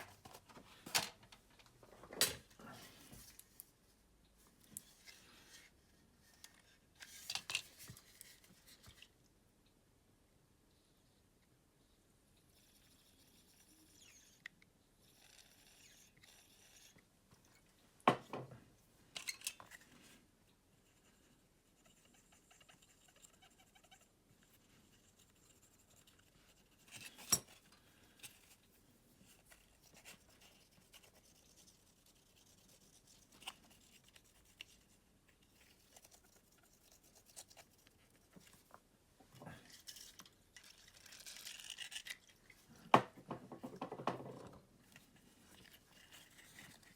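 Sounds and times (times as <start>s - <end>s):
scratching or brushing: 28.3s - 38.7s, 45.0s - 46.9s.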